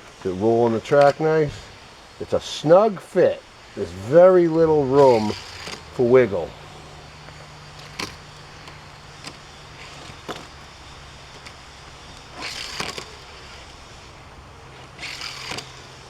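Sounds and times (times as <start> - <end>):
low steady hum: 0.0 - 16.0
toy truck rolling rattle: 0.1 - 16.0
sharp clicks: 4.5 - 16.0.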